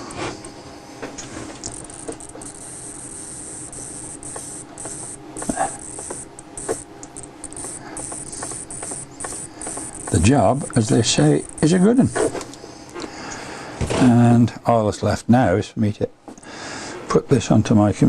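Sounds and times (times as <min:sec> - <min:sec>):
servo hum: 0:00.0 - 0:14.2
high hiss: 0:01.6 - 0:13.0.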